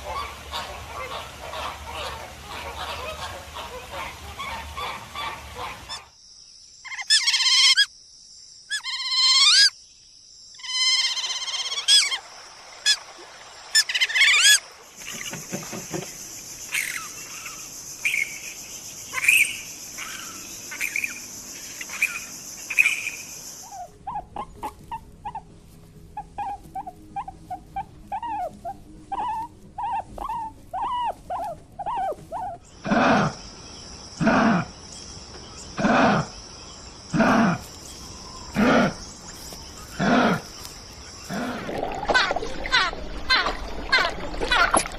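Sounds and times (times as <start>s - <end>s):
steady high hiss: 12.0s - 23.8s
loud animal calls: 13.8s - 18.3s, 26.2s - 33.4s, 38.5s - 39.0s, 39.9s - 40.6s, 41.2s - 44.9s.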